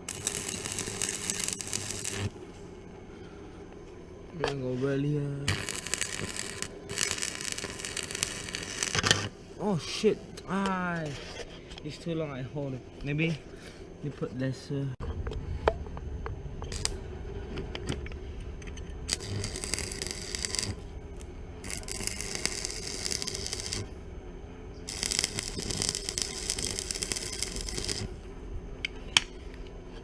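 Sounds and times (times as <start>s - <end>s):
welding arc crackling and hissing: 0.0s - 2.7s, 4.3s - 11.2s, 16.6s - 17.0s, 18.7s - 24.1s, 24.8s - 28.3s
steady low hum: 0.0s - 30.0s.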